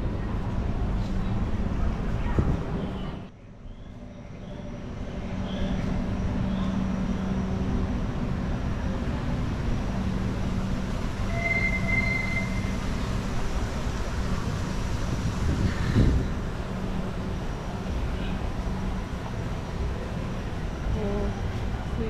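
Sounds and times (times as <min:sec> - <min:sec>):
high squeal: 0:11.2 - 0:13.0.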